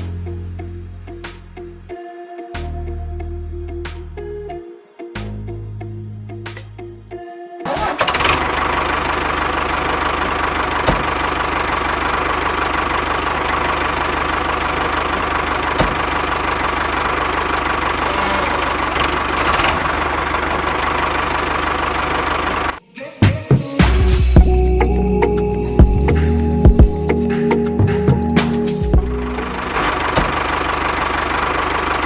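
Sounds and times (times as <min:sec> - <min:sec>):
small motor rattling: 0:08.0 - 0:22.8.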